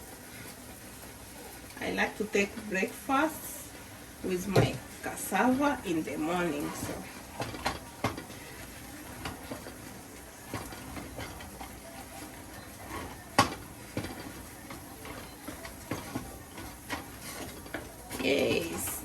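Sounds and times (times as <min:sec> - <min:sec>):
hiss of pots boiling: 0:00.0 - 0:19.0
utensil knocking against a pot: 0:13.0 - 0:18.2.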